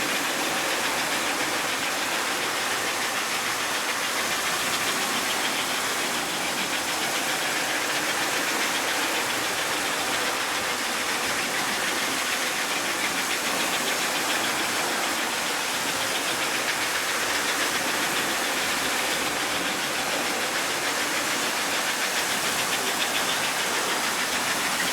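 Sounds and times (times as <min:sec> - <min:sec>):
toy train motor whirring: 0:00.0 - 0:24.9.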